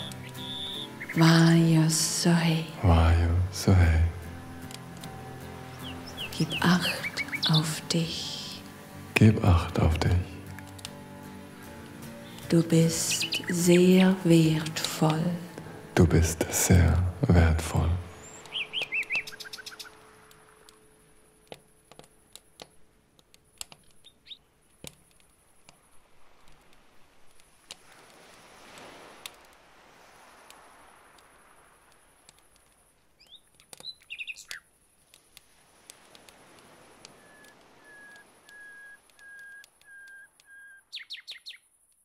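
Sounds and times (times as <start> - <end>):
bird chirping: 0.0 - 1.6, 5.5 - 8.1, 11.6 - 14.8, 17.8 - 20.0, 33.2 - 34.7, 37.2 - 41.7
steady high hiss: 0.0 - 40.5
campfire crackling: 0.0 - 41.2
sharp clicks: 10.4 - 11.0, 21.4 - 24.0.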